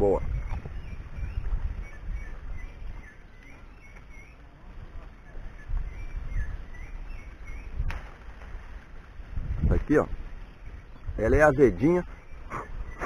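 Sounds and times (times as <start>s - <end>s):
small bird chirping: 0.0s - 8.2s
wind rumbling on microphone: 0.0s - 13.0s.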